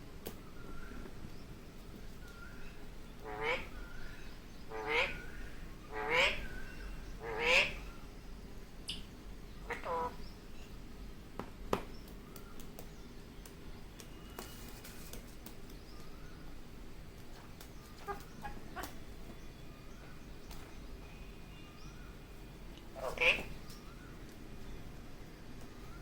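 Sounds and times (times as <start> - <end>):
parakeet harsh calls: 2.5 - 8.0, 9.6 - 10.3, 18.0 - 19.0, 22.9 - 24.0.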